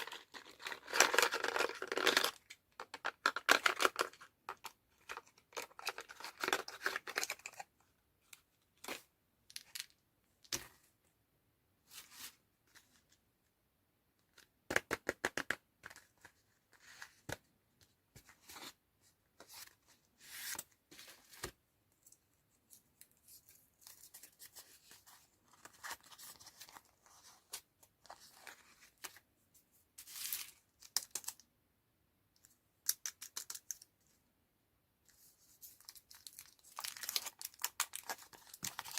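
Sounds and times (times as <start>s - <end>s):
candy wrapper tearing and crinkling: 35.8s - 38.9s.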